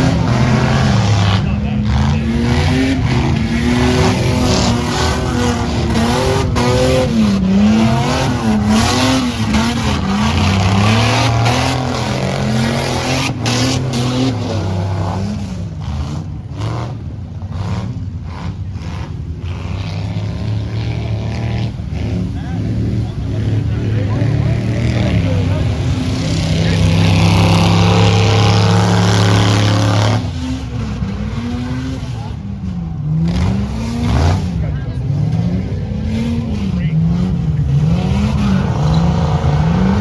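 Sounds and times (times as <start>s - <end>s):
off-road vehicle engine revving: 0.0s - 40.0s.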